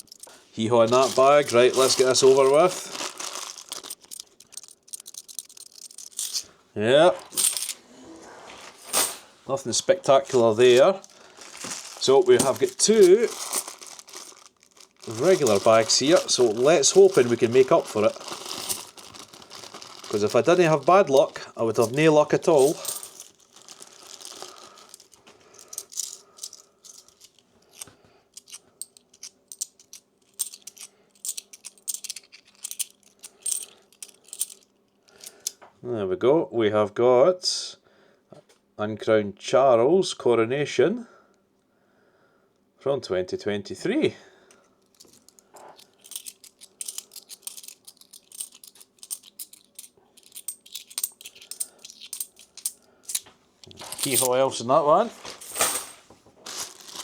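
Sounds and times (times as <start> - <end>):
coins clinking: 0.0 - 6.5, 7.2 - 7.8, 10.3 - 35.5, 45.0 - 54.5, 55.4 - 56.0.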